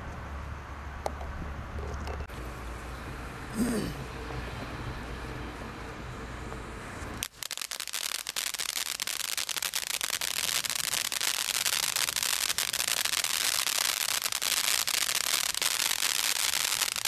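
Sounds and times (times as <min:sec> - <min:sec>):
firework spraying sparks: 0:07.2 - 0:17.0.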